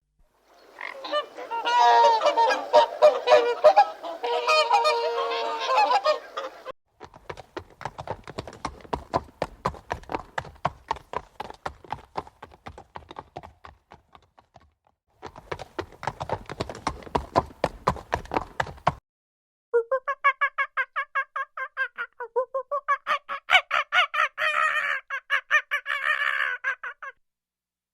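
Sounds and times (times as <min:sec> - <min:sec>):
geese honking: 0:00.6 - 0:06.7.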